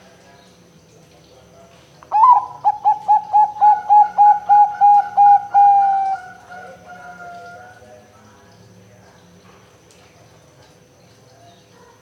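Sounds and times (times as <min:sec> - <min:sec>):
dove cooing: 0:02.1 - 0:07.8.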